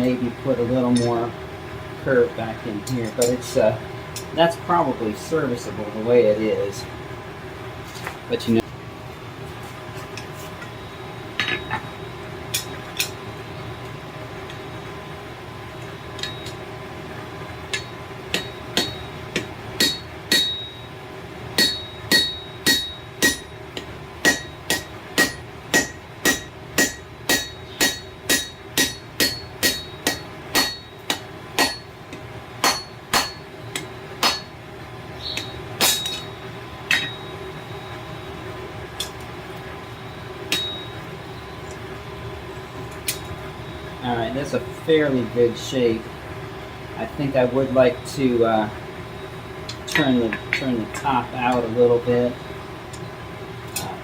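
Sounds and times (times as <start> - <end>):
hammer striking hot steel on anvil: 0.9 - 1.2, 2.8 - 3.5, 11.4 - 13.2, 15.8 - 16.7, 17.7 - 34.6, 35.3 - 37.4, 40.5 - 41.1.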